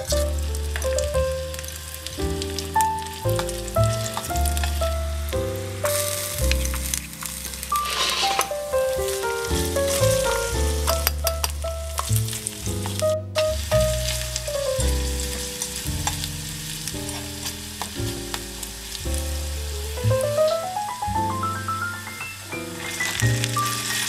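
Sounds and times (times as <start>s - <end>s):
background music: 0.0s - 24.0s
vegetables sizzling in a pan: 0.0s - 24.0s
metal spatula scraping a pan: 7.7s - 8.6s.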